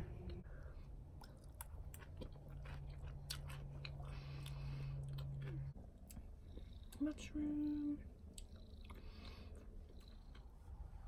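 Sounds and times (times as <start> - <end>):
low steady hum: 0.0 - 11.0
person chewing crisp salad: 0.3 - 7.0.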